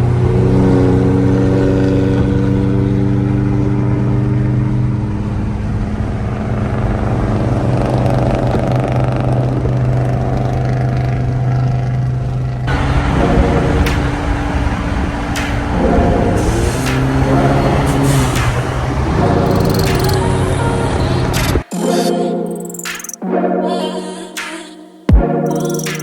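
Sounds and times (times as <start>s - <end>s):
car engine droning steadily: 0.0s - 21.6s.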